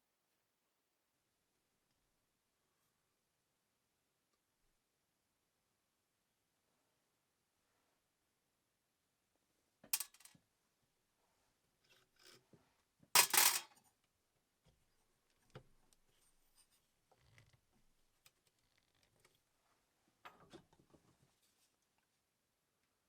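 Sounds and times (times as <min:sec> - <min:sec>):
handling small parts and tools: 0:10.0 - 0:10.4, 0:13.2 - 0:13.8.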